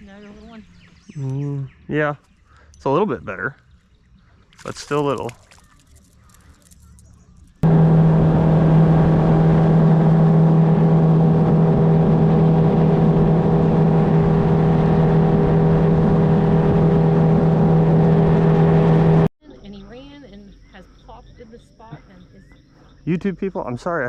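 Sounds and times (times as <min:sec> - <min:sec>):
boat motor droning: 0:06.1 - 0:24.0
rumbling water wash: 0:07.6 - 0:19.3.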